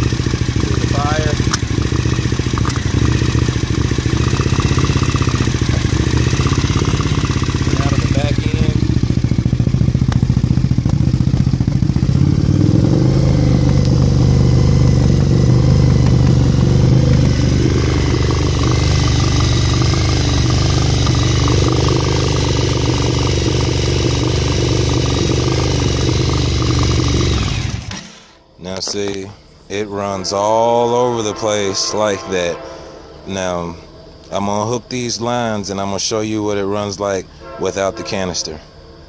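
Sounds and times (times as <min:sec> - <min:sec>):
motorcycle engine running rough: 0:00.0 - 0:28.4.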